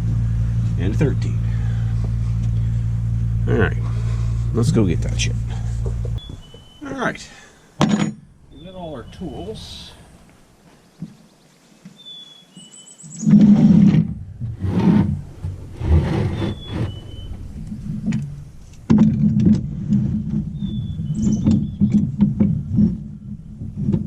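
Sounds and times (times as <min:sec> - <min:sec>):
vehicle engine running: 0:00.0 - 0:06.7, 0:14.0 - 0:24.0
bird chirping: 0:03.9 - 0:13.4, 0:16.2 - 0:18.6, 0:20.0 - 0:22.2
knocks and clanks: 0:04.6 - 0:06.7, 0:07.8 - 0:08.3, 0:17.7 - 0:24.0.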